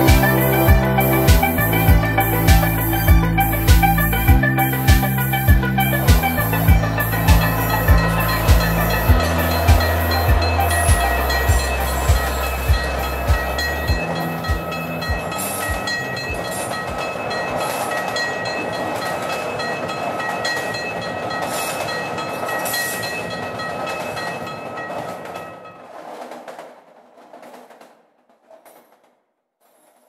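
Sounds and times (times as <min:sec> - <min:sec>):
deep bass beats: 0:00.0 - 0:16.0
train running noise: 0:00.0 - 0:28.0.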